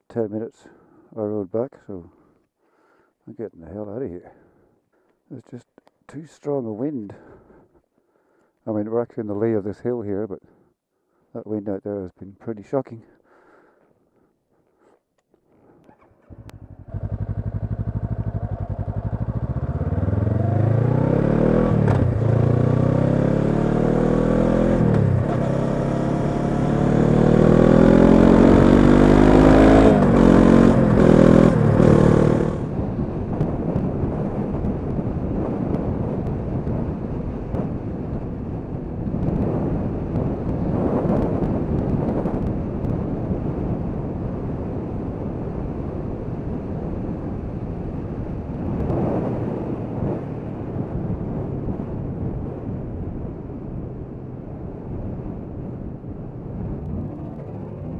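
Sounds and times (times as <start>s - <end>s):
motorcycle engine accelerating: 15.9s - 43.1s, 55.8s - 57.9s
wind noise: 27.4s - 57.9s.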